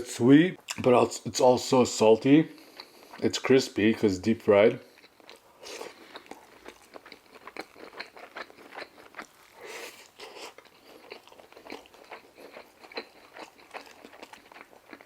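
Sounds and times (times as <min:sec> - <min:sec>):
chewing crispy fried chicken: 0:02.5 - 0:03.4, 0:04.8 - 0:15.0.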